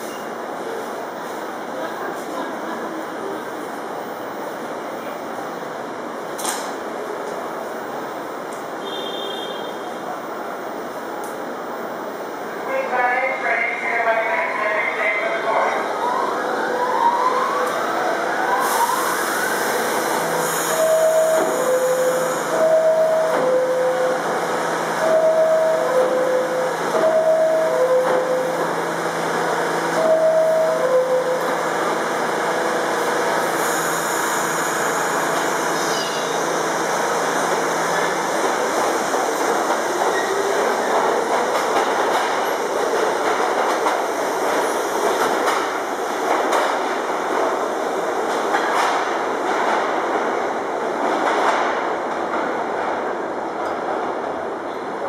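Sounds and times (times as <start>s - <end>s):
train cars rumbling: 16.4s - 55.0s.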